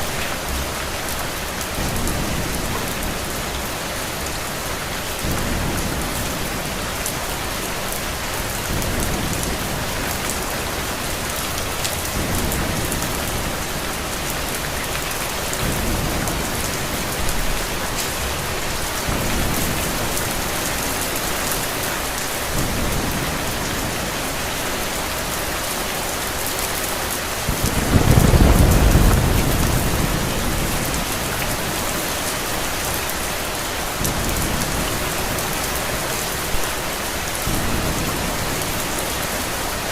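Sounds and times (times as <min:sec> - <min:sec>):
rain pouring: 0:00.0 - 0:39.9
low thunder rumbles: 0:27.2 - 0:33.0
thunder rolling: 0:27.4 - 0:32.4.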